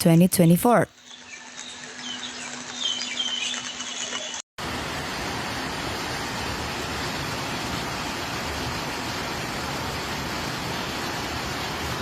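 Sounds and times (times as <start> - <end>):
floodwater rushing: 3.5 - 12.0.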